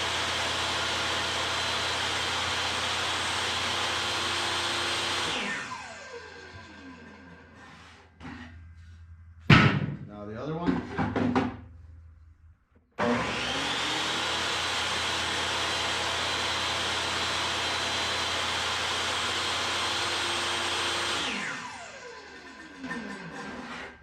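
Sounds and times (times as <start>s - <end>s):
table saw motor whining: 0.0s - 8.1s, 13.0s - 24.0s.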